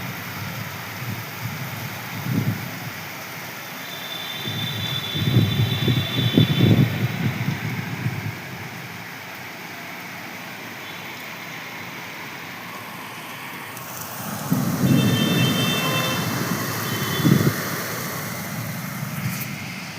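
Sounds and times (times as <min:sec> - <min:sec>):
traffic hiss: 0:00.0 - 0:19.9
motor vehicle passing: 0:13.4 - 0:19.9.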